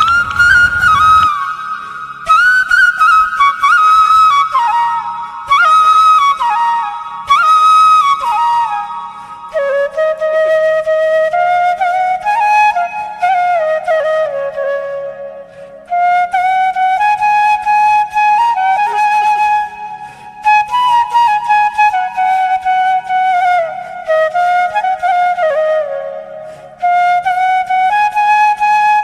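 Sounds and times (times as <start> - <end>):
low steady drone: 0.0 - 1.3
slow flute melody: 0.0 - 29.0.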